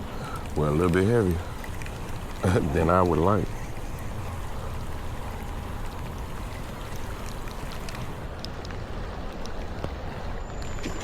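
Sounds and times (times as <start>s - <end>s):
rain falling: 0.0s - 11.0s
light sharp ticks: 0.2s - 2.4s, 5.8s - 11.0s.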